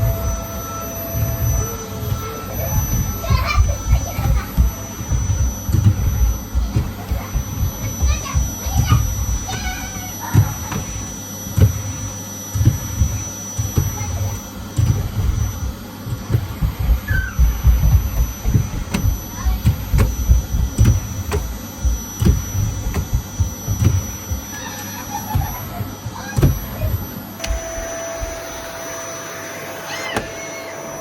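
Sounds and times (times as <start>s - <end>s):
low thuds and bumps: 0.0s - 24.5s.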